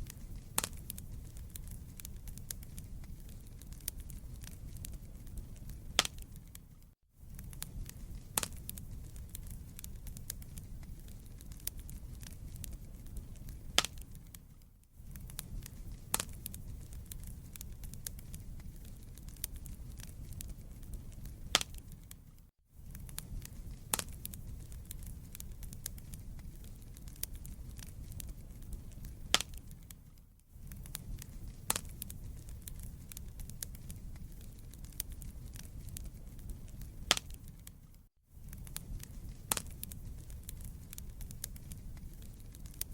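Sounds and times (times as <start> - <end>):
fire rumbling: 0.0 - 42.9
logs crackling and popping: 0.0 - 42.9.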